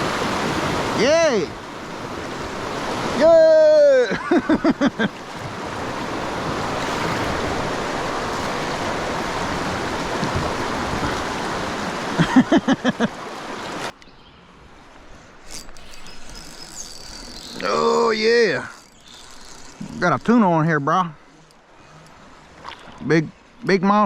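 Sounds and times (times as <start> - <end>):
whitewater rushing: 0.0 - 14.0
person whooping: 3.2 - 4.2.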